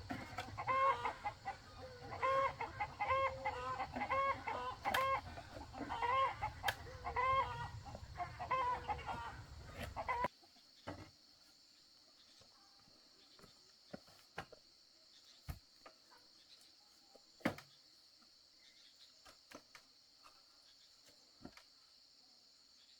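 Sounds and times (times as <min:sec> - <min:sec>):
chickens clucking: 0:00.0 - 0:10.3.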